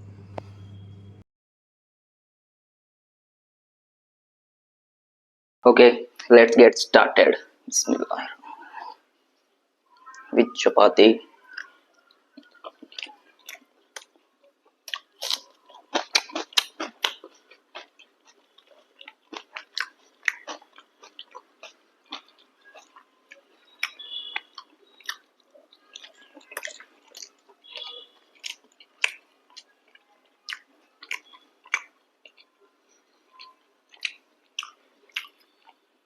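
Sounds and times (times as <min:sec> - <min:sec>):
person chewing food: 0:11.4 - 0:36.0.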